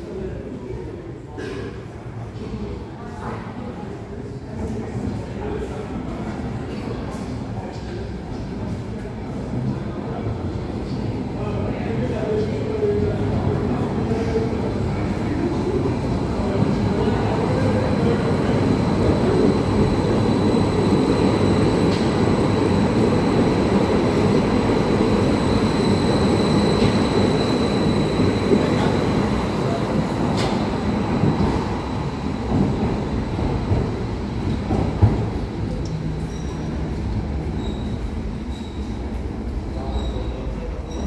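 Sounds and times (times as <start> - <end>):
train wheels rumbling on track: 14.4 - 41.0.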